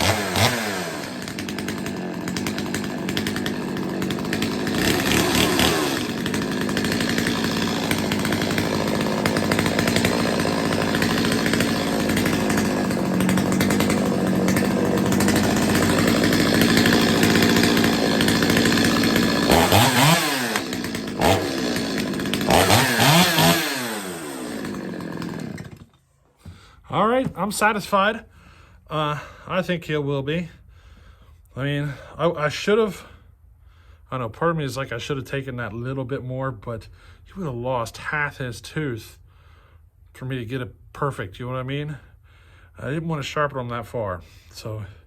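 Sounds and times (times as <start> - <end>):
chainsaw revving at high speed: 0.0 - 25.9.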